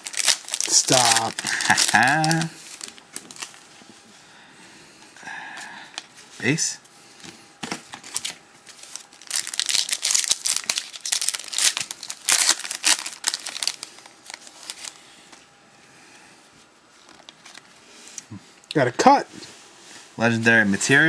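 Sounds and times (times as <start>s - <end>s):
foil wrapper tearing and crinkling: 0.0s - 3.6s, 8.0s - 15.0s.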